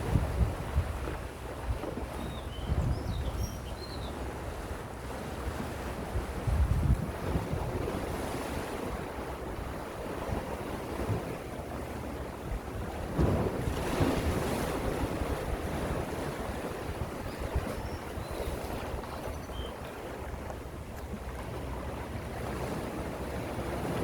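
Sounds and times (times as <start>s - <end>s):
sea waves washing in: 0.0s - 1.6s, 4.5s - 19.4s
wind rumbling on microphone: 0.0s - 24.0s.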